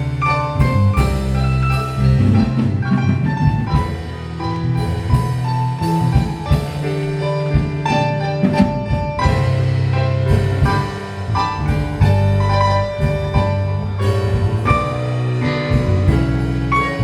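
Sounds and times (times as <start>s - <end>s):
bass line: 0.0s - 17.0s
drum kit: 0.0s - 17.0s.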